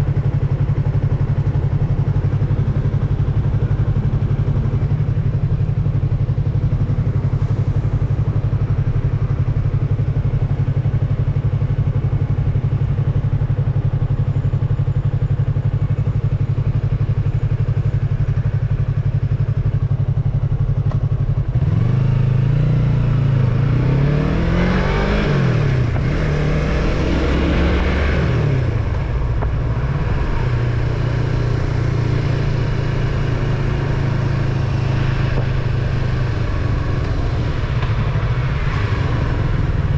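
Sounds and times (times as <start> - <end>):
motorcycle engine revving: 14.7 - 39.9.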